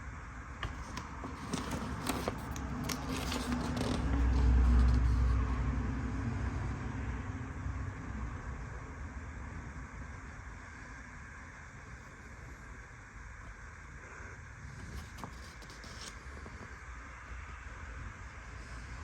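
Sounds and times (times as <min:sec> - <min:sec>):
paper rustling and clicks: 0:00.6 - 0:05.3, 0:14.8 - 0:16.7.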